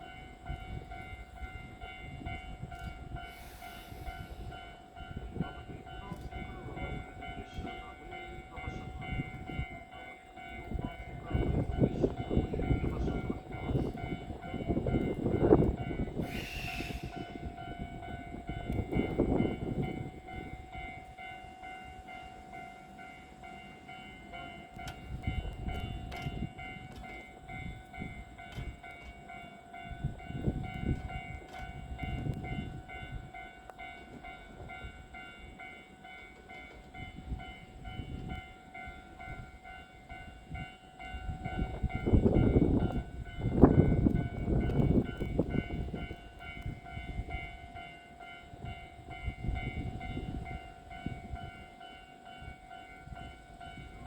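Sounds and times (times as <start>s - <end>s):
train running rumble: 0.0s - 54.0s
air hiss: 3.2s - 4.5s, 16.2s - 17.4s.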